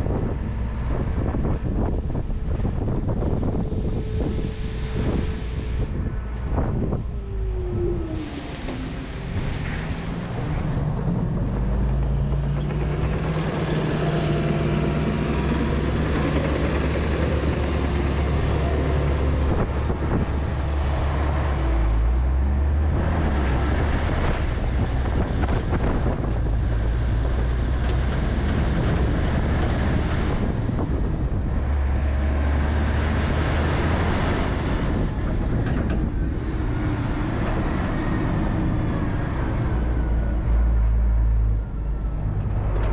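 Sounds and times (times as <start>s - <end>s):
truck diesel engine running: 0.0s - 22.9s.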